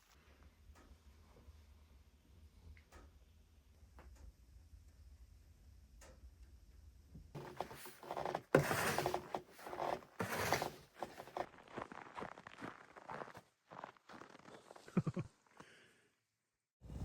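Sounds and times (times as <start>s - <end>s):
crunching and rustling: 7.4s - 14.8s.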